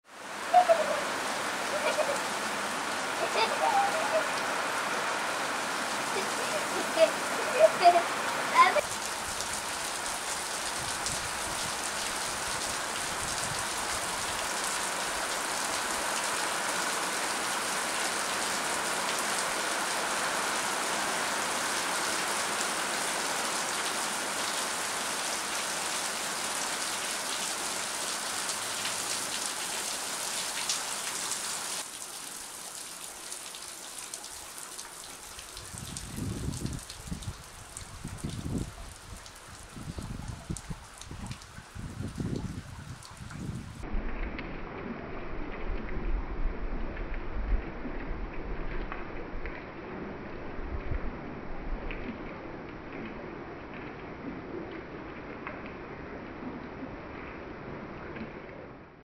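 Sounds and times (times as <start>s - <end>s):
heavy rain on trees: 0.0s - 59.0s.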